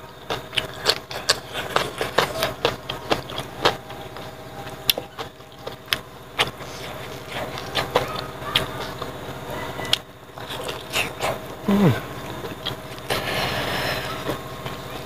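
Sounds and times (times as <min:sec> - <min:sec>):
person chewing and lip-smacking: 0:00.0 - 0:09.2, 0:09.9 - 0:15.0.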